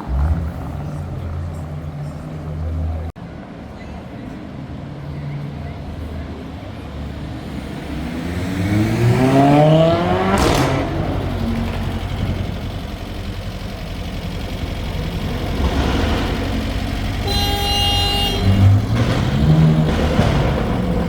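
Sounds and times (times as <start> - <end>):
rumble of traffic: 0.0 - 21.0
car accelerating hard: 7.5 - 12.9, 18.4 - 21.0.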